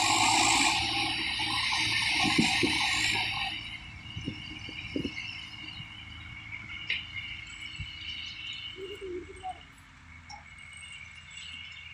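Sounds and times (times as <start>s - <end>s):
crickets trilling: 0.0s - 11.9s.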